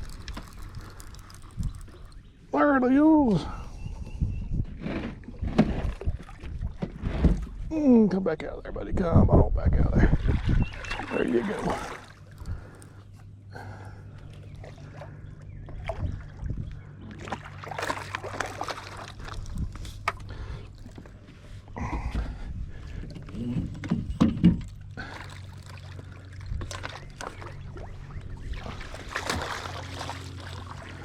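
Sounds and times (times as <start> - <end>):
water sloshing: 0.0 - 2.5, 5.0 - 7.7, 10.0 - 31.0
boat motor humming: 0.0 - 3.9, 10.5 - 31.0.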